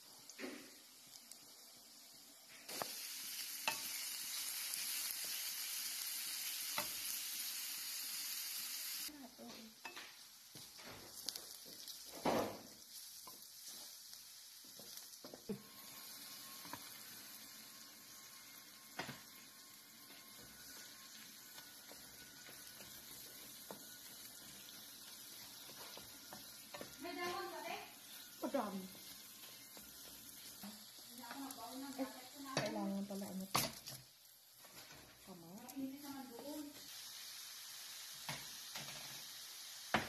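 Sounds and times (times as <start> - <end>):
aromatics sizzling in hot oil: 0.0 - 40.0
wooden spatula scraping a pan: 18.9 - 34.0.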